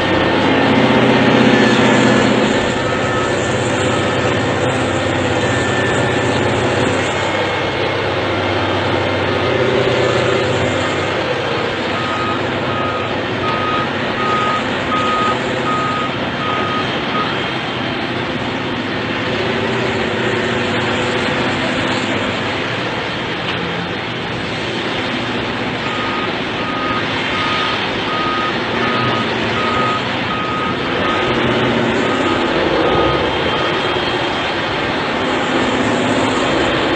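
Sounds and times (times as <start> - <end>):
reversing alarm beeping: 0.0 - 17.5, 25.8 - 34.5
heavy vehicle engine: 0.0 - 36.9.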